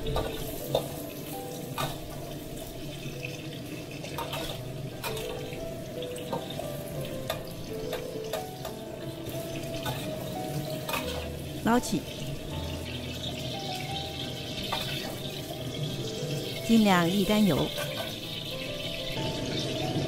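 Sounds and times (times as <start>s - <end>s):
beans sizzling in oil: 0.0s - 20.0s
metal ladle scraping a wok: 4.2s - 5.3s.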